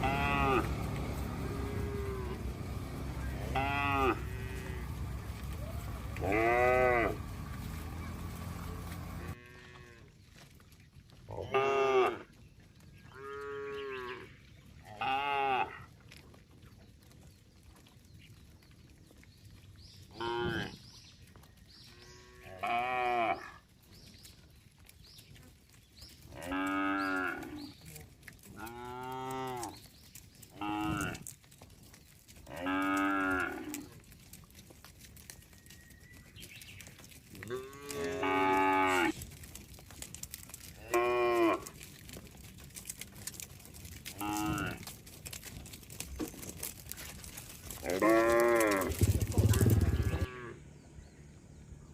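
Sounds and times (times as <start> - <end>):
cattle mooing: 0.0 - 10.1, 14.9 - 15.8, 22.0 - 23.6, 26.3 - 27.7, 28.6 - 29.8, 30.6 - 31.3, 32.4 - 33.9, 37.4 - 39.2, 40.8 - 41.8, 44.0 - 44.9, 47.7 - 50.6.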